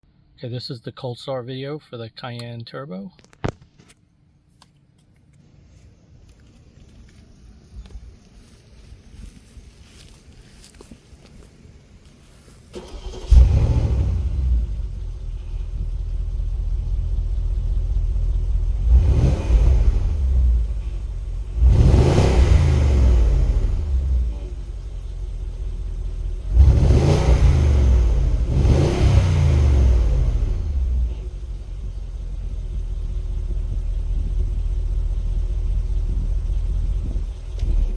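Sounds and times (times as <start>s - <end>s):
car engine starting and idling: 12.2s - 37.9s.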